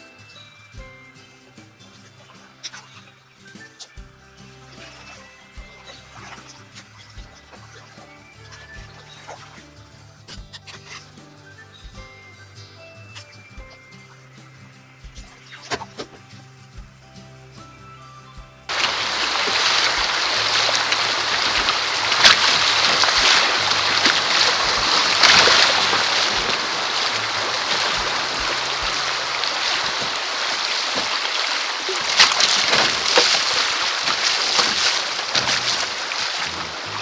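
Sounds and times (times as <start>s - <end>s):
creek water rushing: 4.3s - 10.1s, 18.7s - 37.0s
sharp water splashes: 4.6s - 9.8s, 18.7s - 37.0s.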